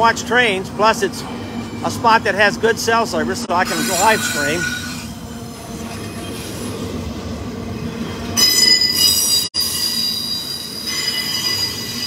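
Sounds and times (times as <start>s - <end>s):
high-pitched wheel squeal: 3.7s - 5.1s, 8.4s - 12.0s.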